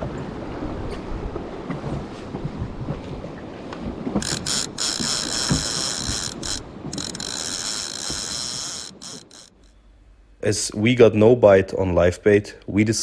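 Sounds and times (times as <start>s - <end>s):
wind rumble: 0.0s - 9.7s
boat rumble: 0.0s - 10.9s
fishing reel clicker buzzing: 4.2s - 9.7s.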